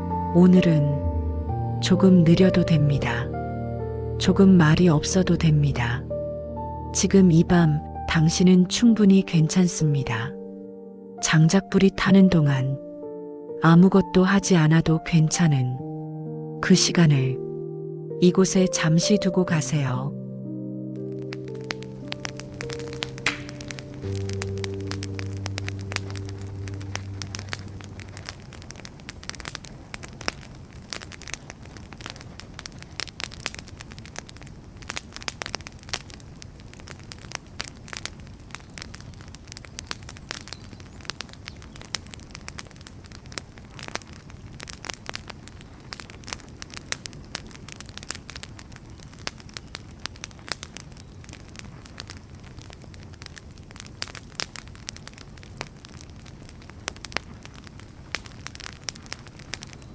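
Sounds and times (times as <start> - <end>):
wood fire crackling: 0.0 - 10.6, 20.9 - 59.9
sharp pops: 21.0 - 52.2
low rush of burning: 21.0 - 59.9.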